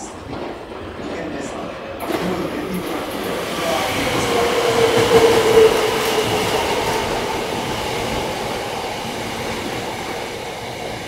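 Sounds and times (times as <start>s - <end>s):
train wheel and rail noise: 0.0s - 11.0s
train squealing tone: 1.1s - 8.7s.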